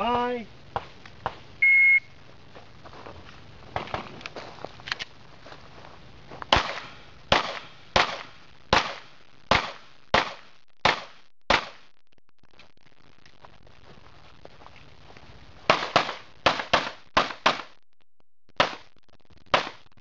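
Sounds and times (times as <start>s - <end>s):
pistol shots: 6.5s - 11.8s, 15.7s - 17.7s, 18.6s - 18.8s, 19.5s - 19.8s.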